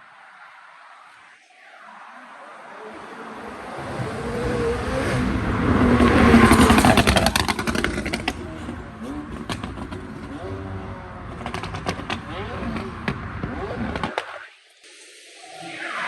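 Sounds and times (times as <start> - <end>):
exhaust crackles: 0.8 - 15.0
car accelerating past: 1.6 - 14.1.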